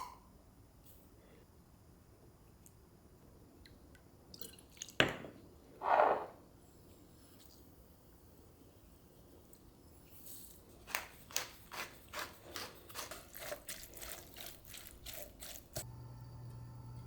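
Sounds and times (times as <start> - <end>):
steady low hum: 15.8 - 17.0.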